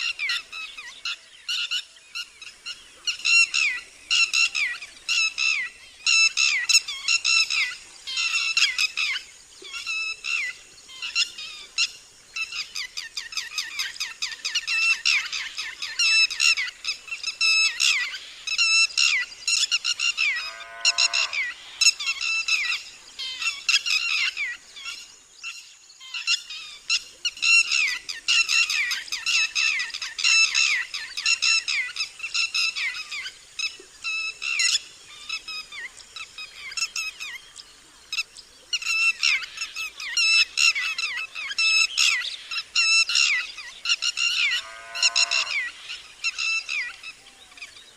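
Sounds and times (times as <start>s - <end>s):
lapwing shrill alarm call: 38.9s - 45.7s.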